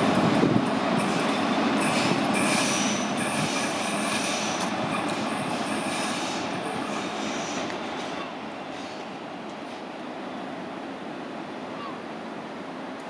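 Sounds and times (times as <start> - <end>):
train wheels rumbling on rails: 0.0 - 10.8
high wheel squeal: 1.0 - 9.0.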